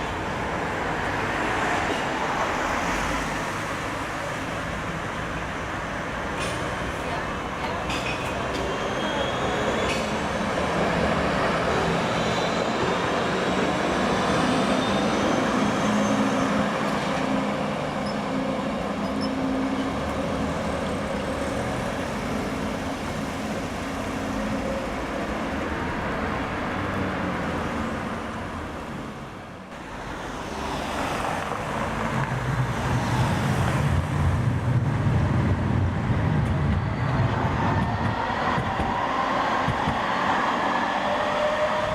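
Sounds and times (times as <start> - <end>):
road traffic noise: 0.0 - 41.9
tram rumbling: 0.0 - 41.9.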